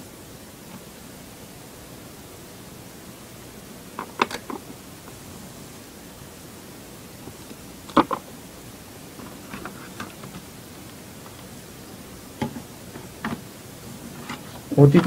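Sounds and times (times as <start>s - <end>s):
steady hiss: 0.0s - 15.0s
laptop parts clicking: 4.0s - 4.6s.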